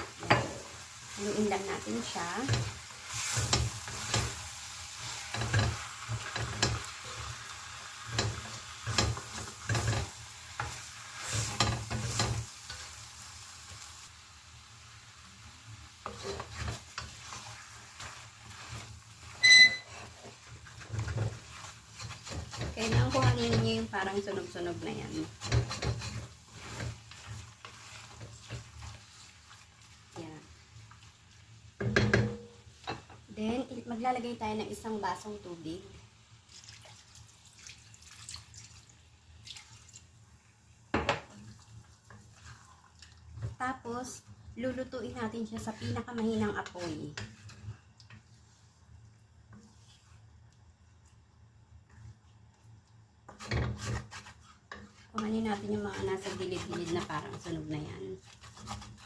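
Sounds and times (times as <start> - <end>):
spoon stirring and scraping pan: 0.0 - 36.2, 40.4 - 59.0
metallic ring of utensil on pan: 19.4 - 20.0
utensil knocking on pan: 31.8 - 32.5
water pouring into a pan: 36.5 - 40.2.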